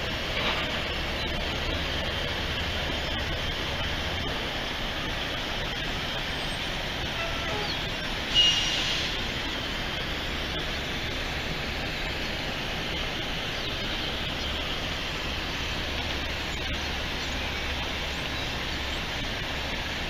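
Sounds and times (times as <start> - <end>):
vehicle engines and machinery rushing: 0.0 - 20.0
short high squeal: 7.1 - 9.2.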